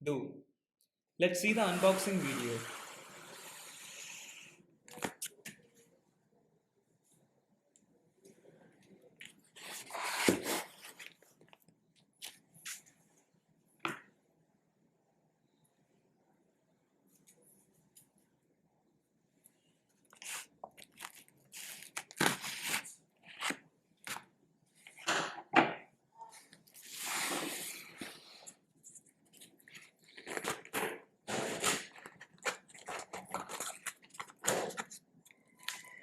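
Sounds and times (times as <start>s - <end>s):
packaging crinkling and tearing: 20.1s - 24.2s, 29.6s - 30.8s, 31.5s - 35.0s.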